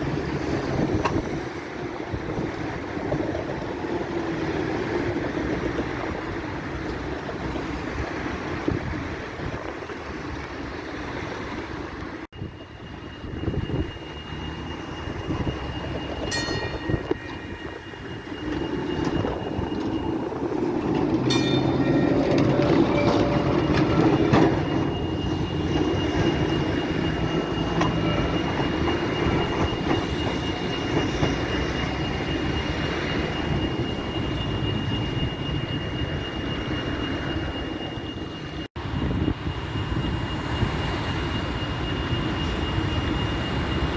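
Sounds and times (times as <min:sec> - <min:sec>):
tram rumbling on rails: 0:00.0 - 0:43.9
thin high whine: 0:12.4 - 0:43.9
short ringing tones: 0:13.8 - 0:38.6.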